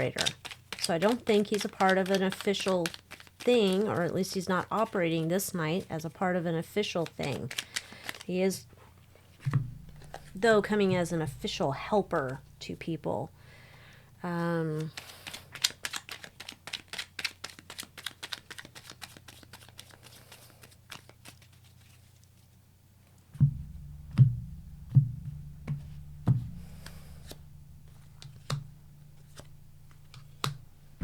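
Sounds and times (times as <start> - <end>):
cards being shuffled: 0.0 - 6.2, 6.8 - 8.4, 9.2 - 10.4, 14.7 - 22.5, 26.6 - 30.6
thumps: 9.4 - 13.0, 23.3 - 31.0
low hum: 9.5 - 13.5, 23.4 - 31.0.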